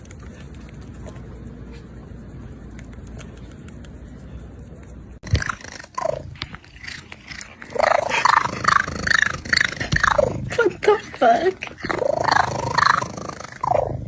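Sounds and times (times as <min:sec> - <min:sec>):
low background noise: 0:00.0 - 0:09.2.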